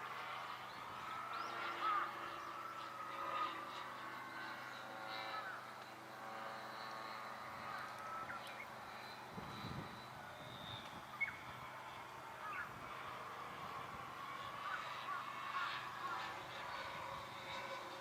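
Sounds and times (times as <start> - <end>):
model airplane propeller drone: 0.0 - 18.0.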